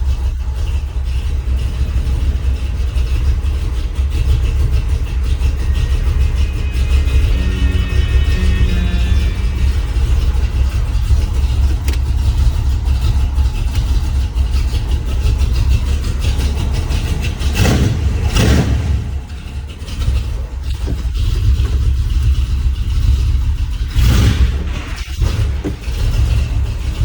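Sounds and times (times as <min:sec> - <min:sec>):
engine revving: 0:00.0 - 0:27.0
truck engine rumbling: 0:00.0 - 0:27.0.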